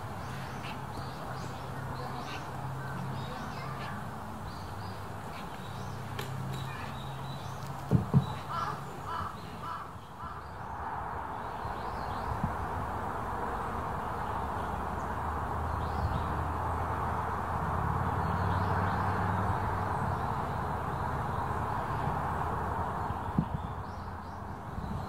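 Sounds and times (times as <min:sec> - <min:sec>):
birds calling: 0:00.0 - 0:10.7
sharp knocks: 0:07.9 - 0:08.4
harsh caws: 0:08.4 - 0:10.4.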